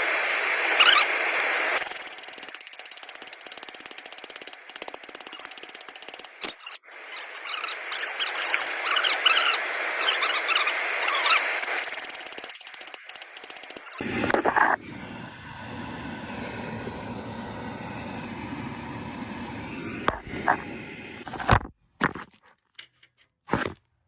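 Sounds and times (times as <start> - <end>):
steady hiss: 0.0 - 21.3
ratchet wrench clicking: 1.8 - 6.7, 11.6 - 14.0.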